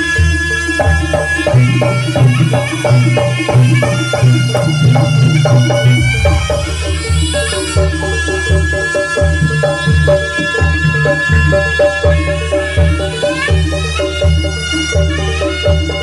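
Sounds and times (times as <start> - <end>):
live band playing instrumental: 0.0 - 16.0
quick drum beat: 0.9 - 8.3.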